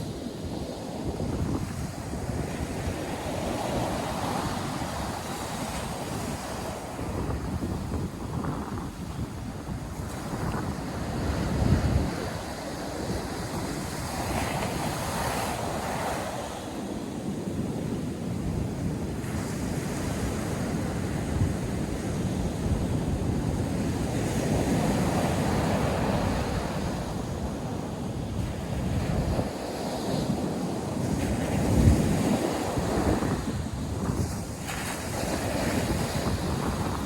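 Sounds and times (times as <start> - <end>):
wind buffeting microphone: 0.0 - 37.0
surf breaking on beach: 23.4 - 37.0.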